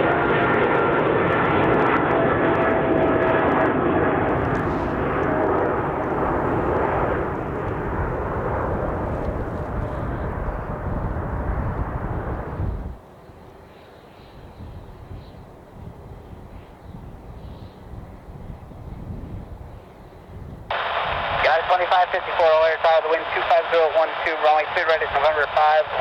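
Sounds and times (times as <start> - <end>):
jet engines passing: 0.0 - 13.0, 20.7 - 26.0.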